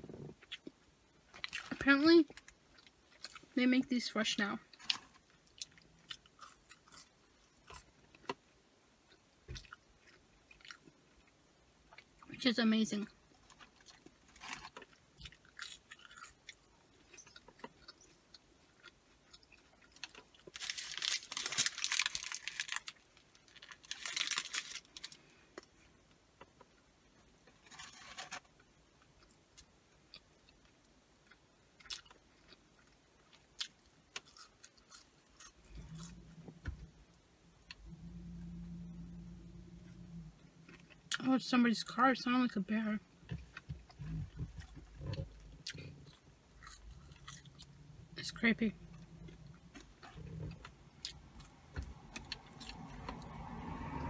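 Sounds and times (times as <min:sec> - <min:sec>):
person chewing food: 0:04.7 - 0:12.3, 0:13.4 - 0:22.8, 0:27.7 - 0:36.6, 0:39.8 - 0:41.2, 0:43.3 - 0:48.2, 0:48.8 - 0:53.3
truck engine rumbling: 0:35.6 - 0:54.0.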